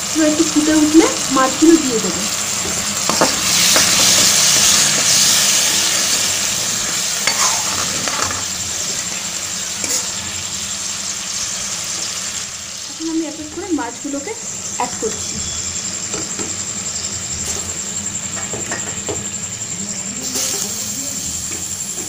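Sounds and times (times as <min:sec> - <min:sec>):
masala sizzling in hot oil: 0:00.0 - 0:22.0
spoon scraping a pan: 0:07.2 - 0:08.4, 0:09.8 - 0:10.1.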